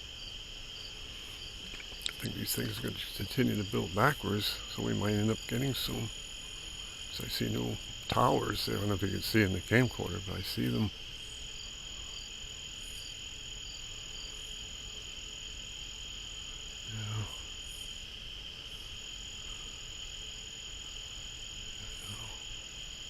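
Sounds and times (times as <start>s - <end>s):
insect chirping: 0.0s - 23.0s
insect chorus high trill: 0.0s - 23.0s
faint voice-like sound: 16.8s - 17.4s.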